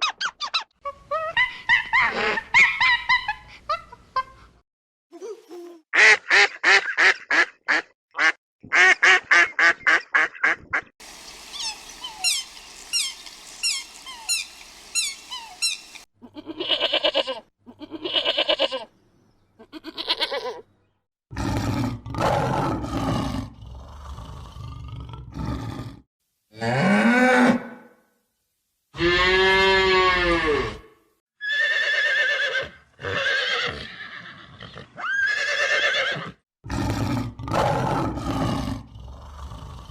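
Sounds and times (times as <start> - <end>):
farm animals calling: 9.0 - 18.9
chirping: 11.1 - 16.1.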